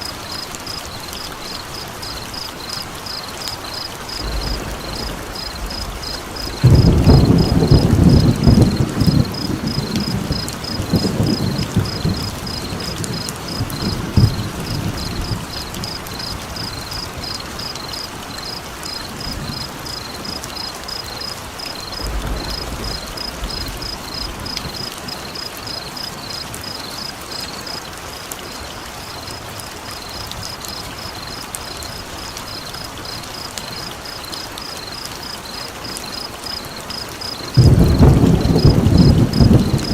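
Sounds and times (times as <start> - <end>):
steady rain: 0.0 - 39.9
thunder rumbling: 4.0 - 17.8, 21.8 - 25.4, 37.3 - 39.9.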